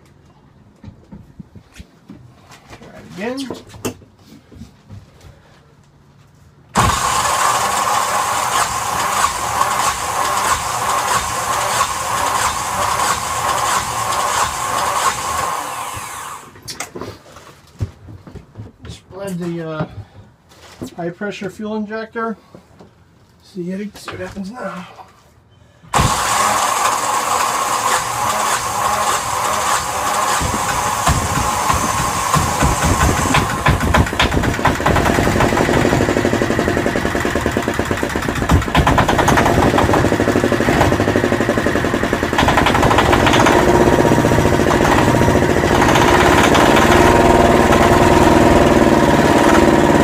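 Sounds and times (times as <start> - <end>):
diesel engine cranked by starter: 6.7 - 16.6, 25.9 - 50.0.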